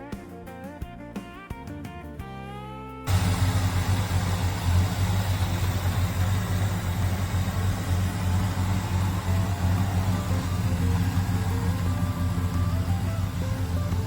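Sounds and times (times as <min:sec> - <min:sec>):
car engine idling: 0:03.1 - 0:14.0.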